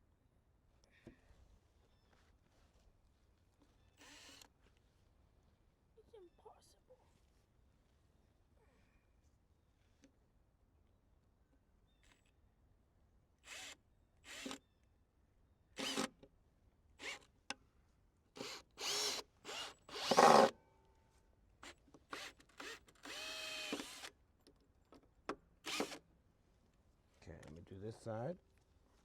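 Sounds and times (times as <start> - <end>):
power drill driving screws: 4.0 - 4.5, 13.5 - 14.6, 15.8 - 16.2, 17.0 - 17.2, 18.4 - 20.5, 21.6 - 24.1, 25.6 - 26.0.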